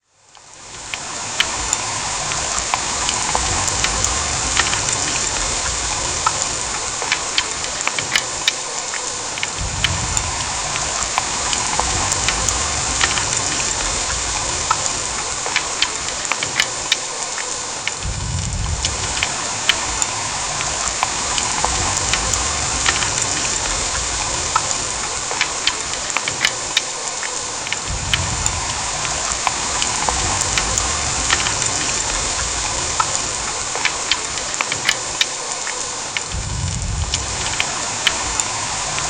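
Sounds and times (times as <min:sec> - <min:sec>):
heavy rain hissing: 0:00.0 - 0:39.0
raindrop ticks: 0:00.2 - 0:39.0
low rumble: 0:09.6 - 0:15.3, 0:18.0 - 0:25.1, 0:27.9 - 0:33.5, 0:36.3 - 0:39.0.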